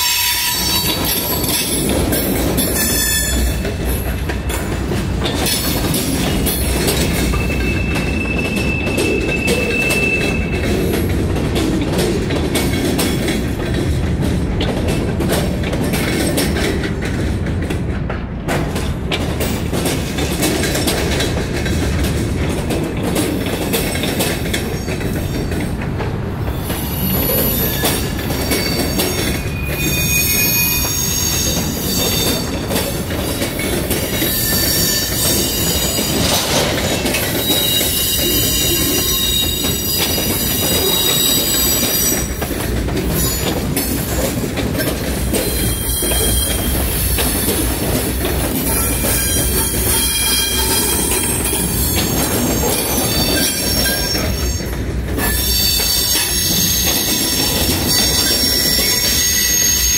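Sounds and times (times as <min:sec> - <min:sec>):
high-pitched wheel squeal: 0:00.0 - 0:01.2, 0:26.9 - 0:32.4, 0:55.2 - 0:59.9
steel wheels rumbling on rails: 0:00.0 - 0:59.9.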